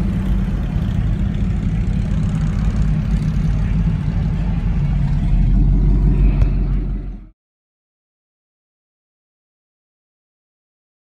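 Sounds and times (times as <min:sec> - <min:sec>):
vehicle engines rumbling: 0:00.0 - 0:07.4.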